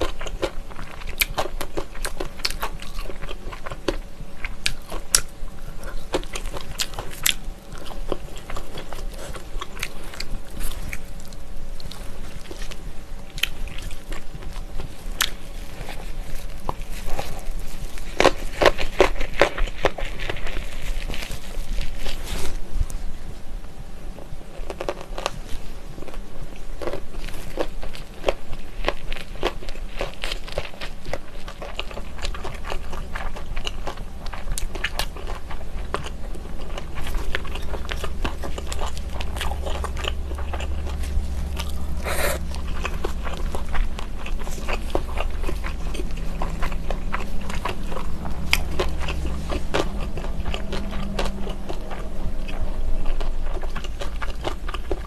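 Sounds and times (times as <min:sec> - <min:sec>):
close chewing with crunches: 0:00.0 - 0:23.4, 0:24.1 - 0:55.0
wet mouth clicks: 0:42.0 - 0:42.6.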